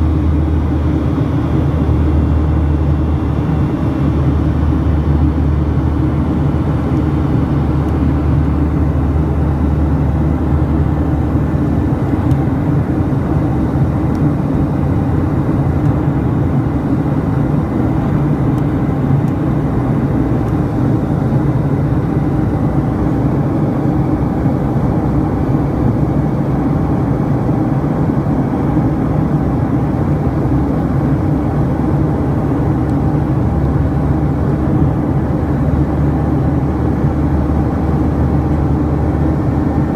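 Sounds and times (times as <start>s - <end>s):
airliner engines droning: 0.0s - 39.9s.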